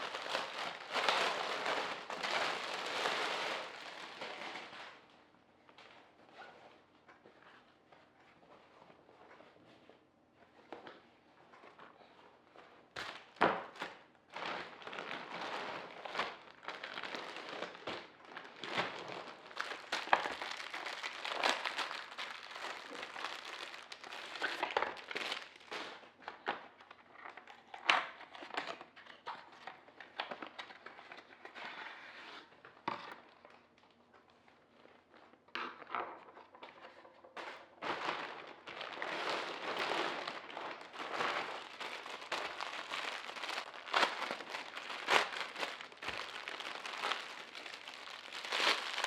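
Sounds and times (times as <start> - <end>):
packaging crinkling and rustling: 0.0 - 5.1, 13.0 - 31.6, 36.2 - 49.0.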